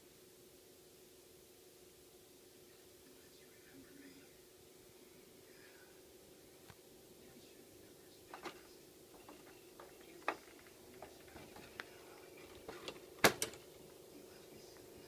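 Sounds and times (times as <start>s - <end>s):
faint steady hum: 0.0s - 15.0s
videodisc player mechanism clicking: 9.2s - 13.7s.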